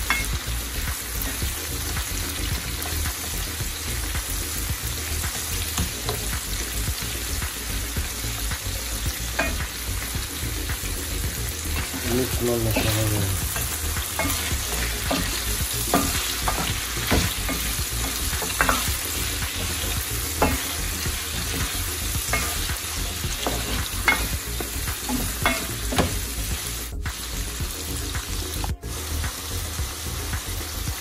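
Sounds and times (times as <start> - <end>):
food sizzling in oil: 0.0 - 31.0
spatula scraping and knocking pot: 11.8 - 26.2.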